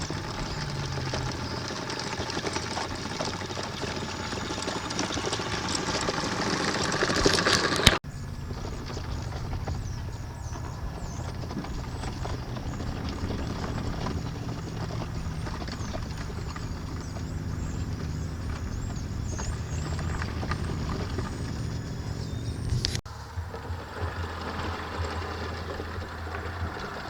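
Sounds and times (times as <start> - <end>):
small birds chirping: 0.0 - 23.4.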